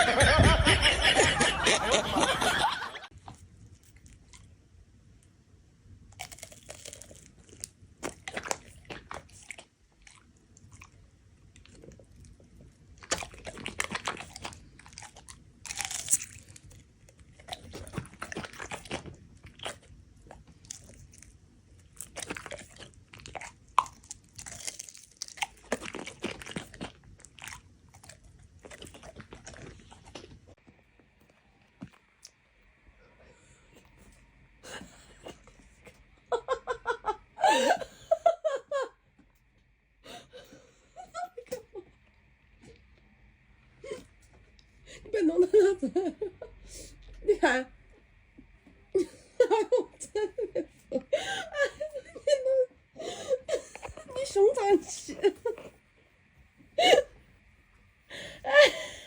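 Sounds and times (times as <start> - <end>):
crunchy chewing: 6.1 - 32.4.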